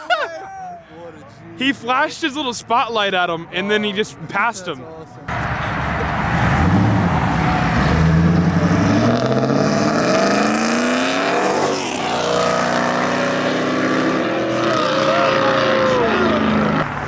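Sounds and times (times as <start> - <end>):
car engine accelerating: 5.3 - 17.0.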